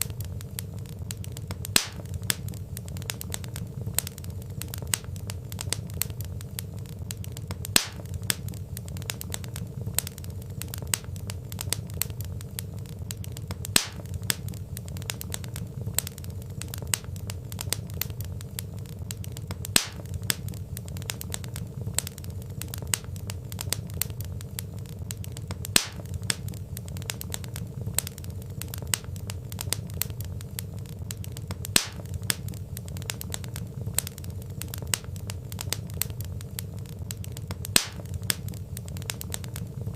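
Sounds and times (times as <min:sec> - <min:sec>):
low steady rumble: 0:00.0 - 0:39.9
wood fire crackling: 0:00.0 - 0:39.9
loud fire pop: 0:01.1 - 0:02.6, 0:07.4 - 0:09.4, 0:13.1 - 0:14.6, 0:19.5 - 0:21.4, 0:25.5 - 0:28.1, 0:31.1 - 0:34.1, 0:37.1 - 0:39.6.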